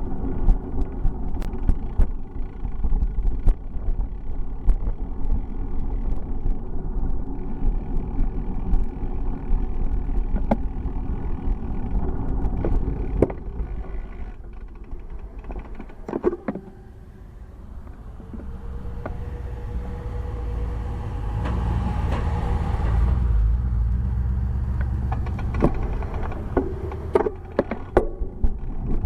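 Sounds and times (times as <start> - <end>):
road rumble: 0.0 - 29.0
sharp knocks and rattles: 12.3 - 16.8, 24.8 - 29.0.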